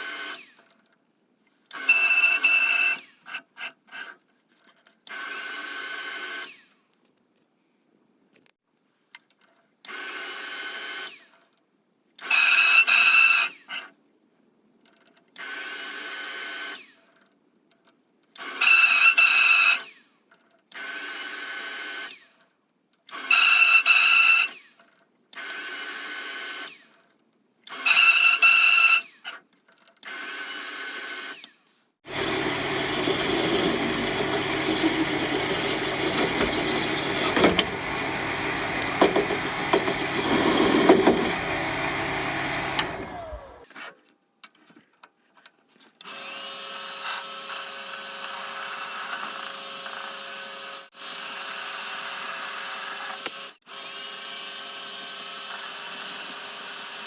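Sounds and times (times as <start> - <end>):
lathe running: 32.1 - 43.6.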